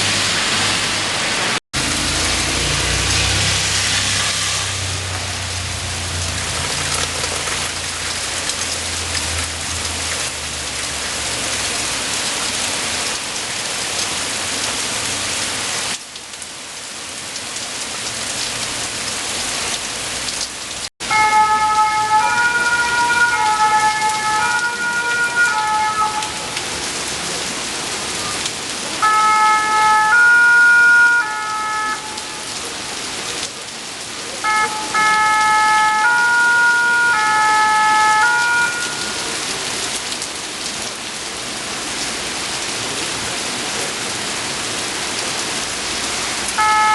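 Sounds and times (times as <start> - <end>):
steady rain falling: 0.0 - 46.9
emergency vehicle siren: 21.0 - 27.4, 28.1 - 33.0, 34.3 - 39.9, 46.5 - 46.9.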